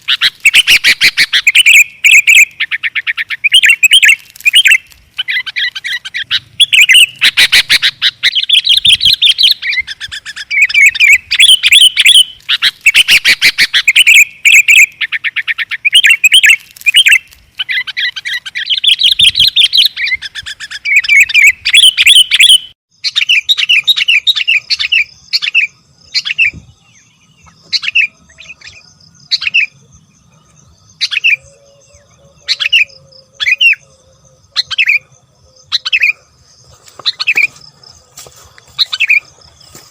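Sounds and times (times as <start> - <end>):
bulbuls calling noisily: 0.0 - 39.9
rapid bird chirps and rattling trills: 0.0 - 39.9.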